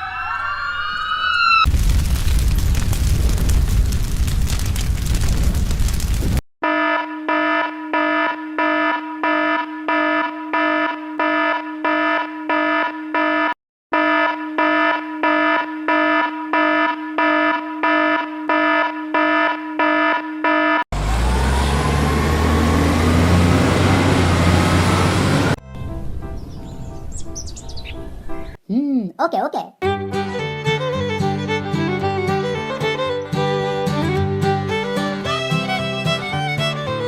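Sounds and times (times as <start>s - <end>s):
electronic beeping alarm: 6.6s - 20.8s
engine rumble with rising whine: 21.0s - 26.2s.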